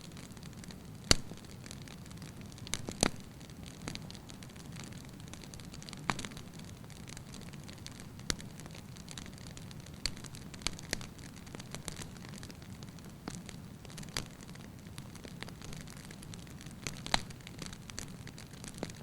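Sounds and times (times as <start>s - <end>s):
wood logs crackling in fireplace: 0.0s - 19.0s.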